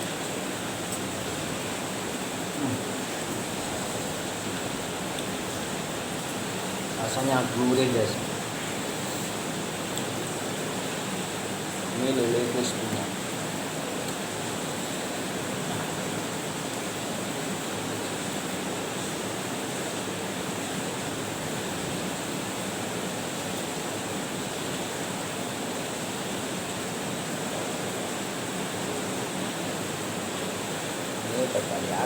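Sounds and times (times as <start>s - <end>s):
steady background hiss: 0.0s - 32.0s.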